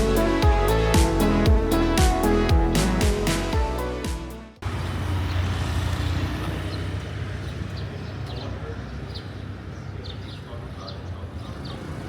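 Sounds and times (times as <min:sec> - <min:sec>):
intro music: 0:00.0 - 0:04.6.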